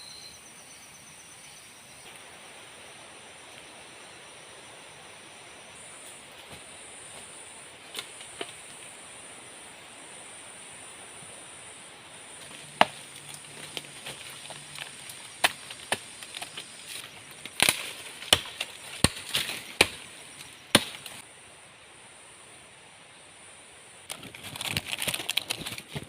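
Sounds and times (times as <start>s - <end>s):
blade chopping wood: 12.4s - 20.1s, 20.7s - 21.2s.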